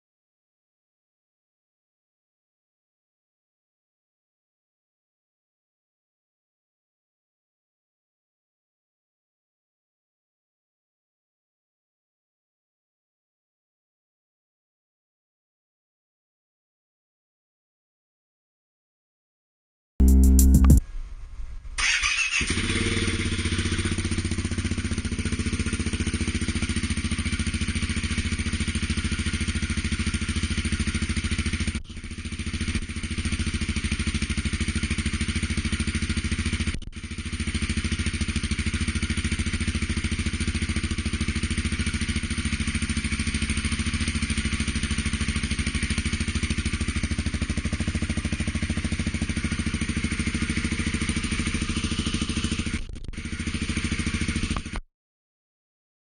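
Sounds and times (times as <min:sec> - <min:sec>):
motorcycle engine idling: 0:21.8 - 0:54.8.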